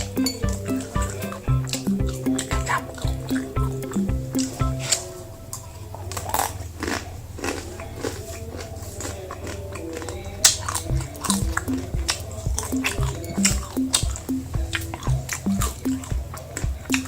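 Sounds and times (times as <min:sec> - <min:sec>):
background music: 0:00.0 - 0:06.2, 0:10.4 - 0:17.0
crunching dry noodles: 0:06.0 - 0:11.0.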